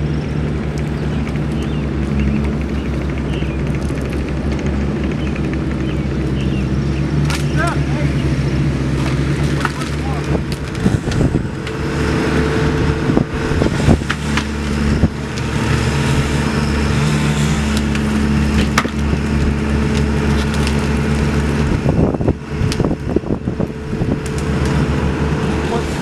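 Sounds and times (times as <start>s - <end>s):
engine running: 0.0s - 26.0s
sharp knocks and cracks: 2.4s - 5.8s, 7.2s - 7.8s, 9.0s - 11.8s, 13.9s - 15.6s, 17.0s - 21.8s.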